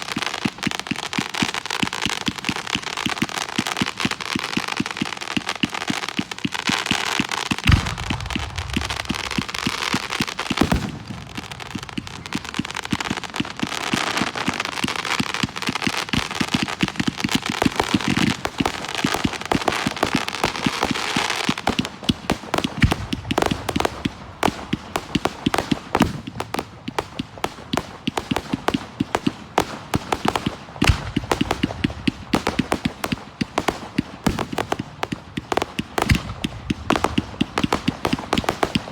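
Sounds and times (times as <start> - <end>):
fireworks crackling and popping: 0.0 - 38.9
firework shell bursts booming: 7.6 - 13.6.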